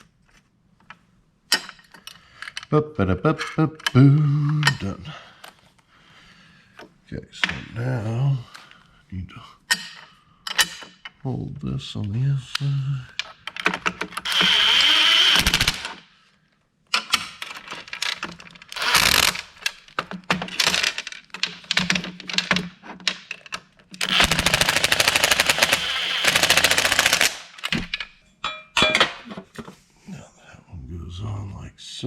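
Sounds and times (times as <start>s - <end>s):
impact wrench hammering bolts: 13.6s - 16.0s, 18.7s - 21.0s, 24.0s - 29.2s.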